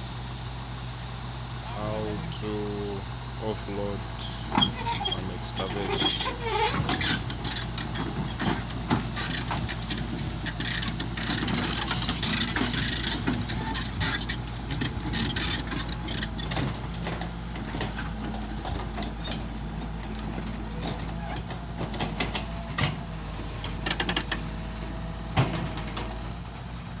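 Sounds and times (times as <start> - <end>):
diesel engine running: 0.0 - 27.0
burst of hiss: 11.8 - 13.3.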